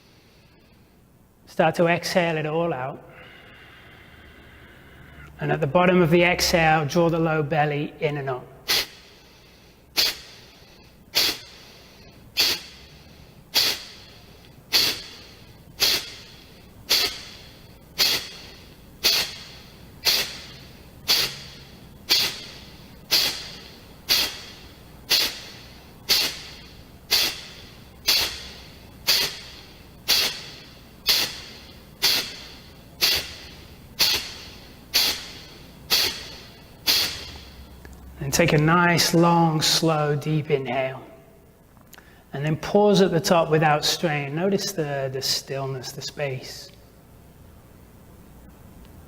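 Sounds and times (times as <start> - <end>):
sharp nasal exhalations: 3.1 - 5.4, 8.6 - 37.8, 41.9 - 42.3.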